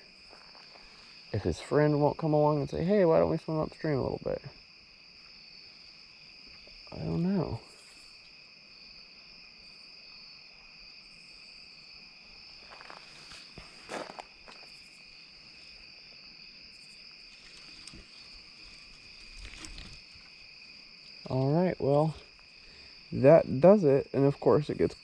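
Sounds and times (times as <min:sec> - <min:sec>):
insect chorus chirring: 0:00.0 - 0:25.0
rustles and clicks: 0:17.3 - 0:20.5.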